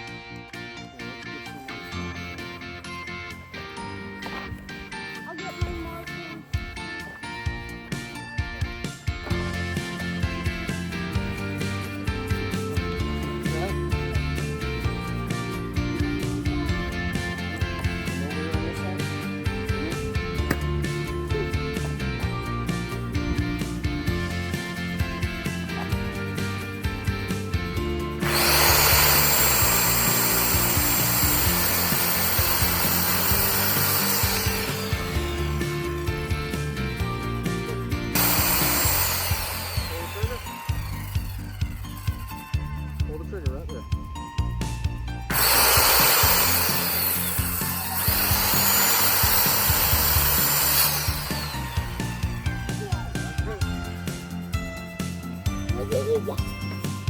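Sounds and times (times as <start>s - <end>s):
background music with beat: 0.0s - 57.0s
circular saw cutting wood: 9.3s - 23.0s, 27.2s - 42.4s, 45.3s - 54.3s
circular saw cutting board: 28.2s - 35.8s, 38.2s - 42.0s, 45.3s - 52.4s.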